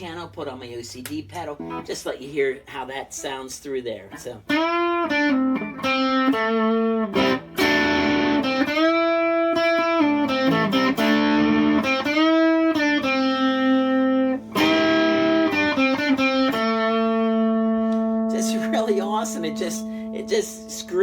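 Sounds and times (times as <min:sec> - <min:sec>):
overdriven electric guitar: 0:04.4 - 0:21.0.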